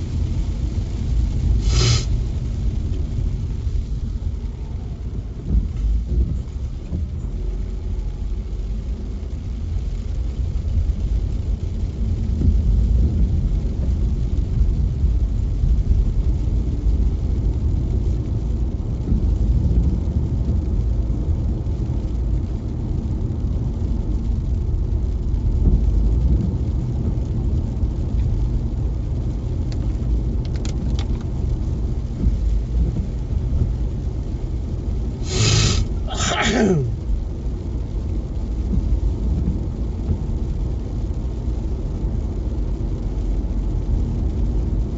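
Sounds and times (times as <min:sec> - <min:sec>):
car driving on wet road: 0:00.0 - 0:44.9
short loud noises: 0:35.2 - 0:37.0.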